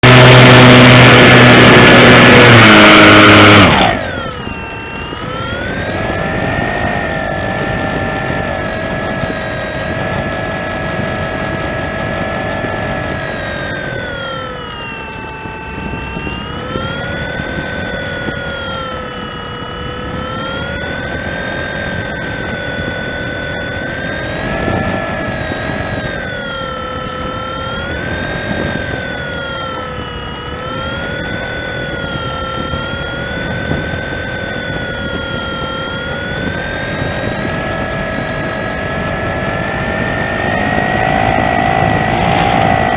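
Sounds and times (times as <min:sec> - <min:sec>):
model airplane motor and propeller whine: 0:00.0 - 0:42.9
harsh sound with stepped tones: 0:38.1 - 0:42.9.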